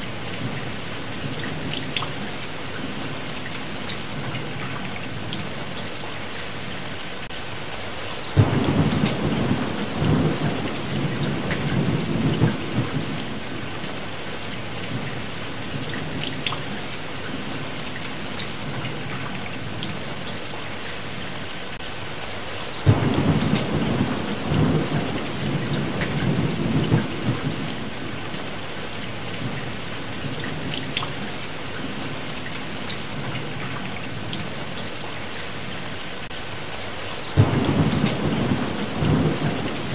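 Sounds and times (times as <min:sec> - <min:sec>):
steady rain: 0:00.0 - 0:39.9
thunder rumbling: 0:08.4 - 0:13.8, 0:22.9 - 0:28.3, 0:37.4 - 0:39.9.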